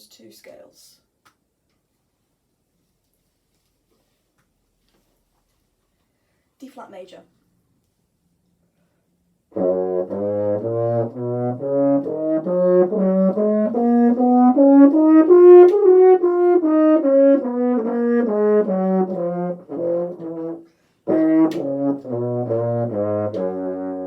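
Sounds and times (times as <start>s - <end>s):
french horn playing a scale: 9.5s - 24.0s.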